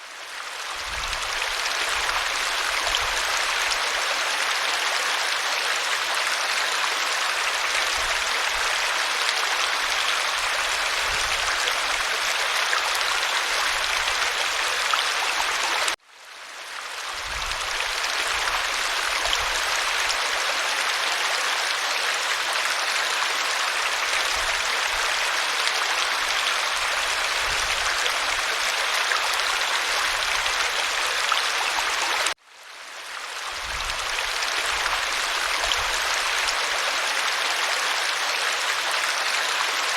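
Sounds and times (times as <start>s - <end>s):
waterfall rushing: 1.4s - 16.0s.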